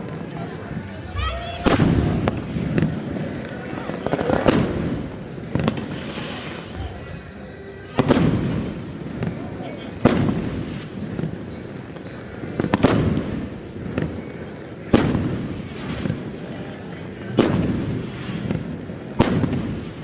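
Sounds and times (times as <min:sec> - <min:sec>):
rumbling echo: 0:00.0 - 0:15.6
fireworks booming: 0:00.0 - 0:20.0
small fireworks cracks: 0:00.0 - 0:20.0.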